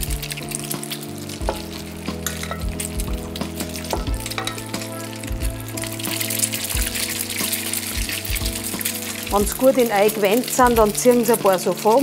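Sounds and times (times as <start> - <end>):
bread sizzling in a frying pan: 0.0 - 12.0
fat popping and crackling: 0.0 - 12.0.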